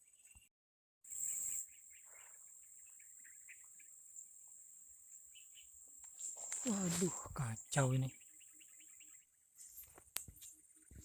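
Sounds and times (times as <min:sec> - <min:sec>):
high-pitched insect drone: 0:01.1 - 0:09.3
faint bird chirps: 0:01.1 - 0:11.0.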